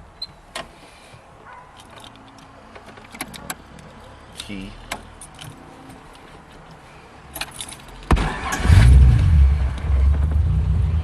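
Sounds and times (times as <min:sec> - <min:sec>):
keys jingling: 0:01.5 - 0:03.9, 0:05.1 - 0:06.3, 0:07.3 - 0:08.0
car engine starting and idling: 0:08.0 - 0:11.0.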